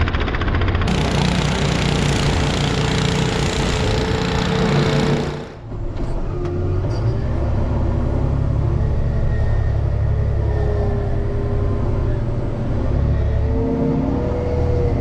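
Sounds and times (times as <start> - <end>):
snow plow engine working hard: 0.0 - 12.9
loud rushing noise: 0.8 - 5.7.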